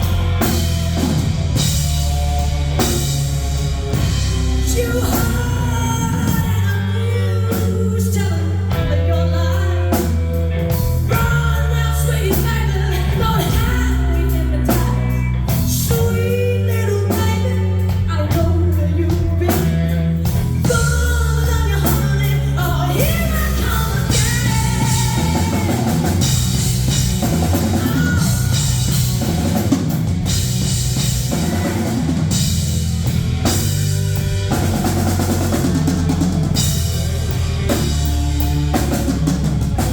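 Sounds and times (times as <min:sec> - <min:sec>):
drums and cymbals: 0:00.0 - 0:39.9
live rock band playing: 0:00.0 - 0:39.9
woman singing: 0:04.6 - 0:10.1, 0:11.0 - 0:29.1.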